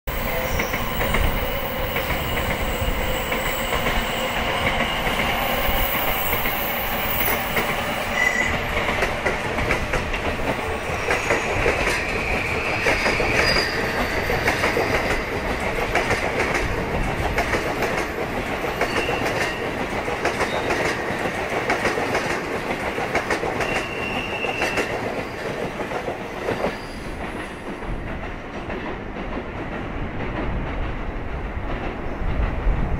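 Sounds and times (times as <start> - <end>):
high-pitched wheel squeals: 0.2 - 8.7, 10.8 - 14.4, 23.6 - 24.9
train wheels clicking over rail joints: 0.3 - 32.8.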